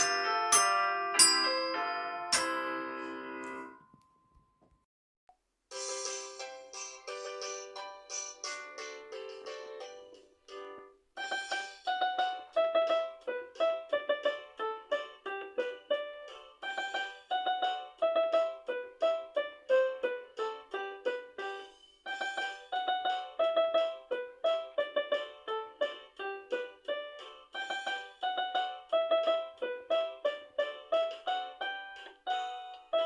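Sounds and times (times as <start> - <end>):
melody of struck notes: 0.0 - 3.8.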